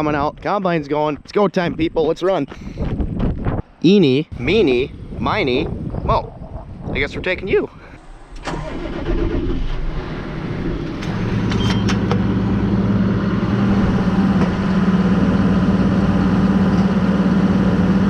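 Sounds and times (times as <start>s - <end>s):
tractor diesel engine idling: 7.9s - 18.0s.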